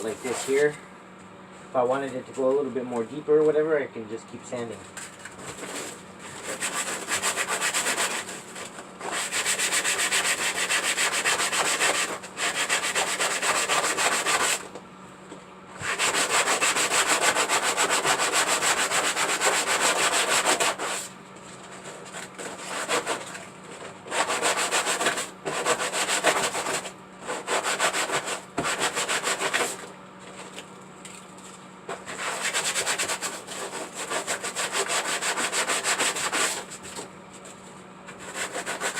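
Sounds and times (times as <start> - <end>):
sandpaper rubbing by hand: 0.0 - 0.7, 5.6 - 14.6, 15.8 - 21.1, 21.8 - 29.8, 31.9 - 37.0, 38.2 - 38.9.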